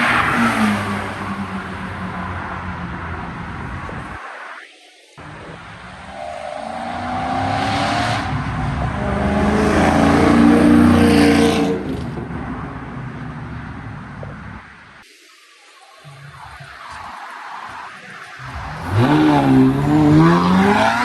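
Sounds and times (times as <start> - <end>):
sports car accelerating past: 6.5 - 12.2, 18.4 - 21.0.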